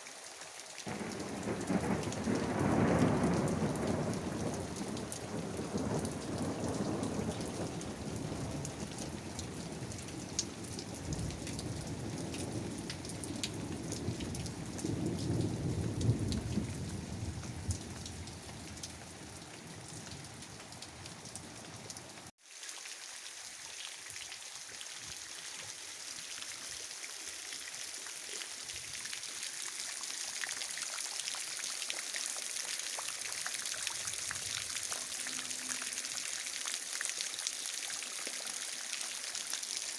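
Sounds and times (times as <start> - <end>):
steady rain falling: 0.0 - 39.9
thunder rumbling: 0.9 - 19.0.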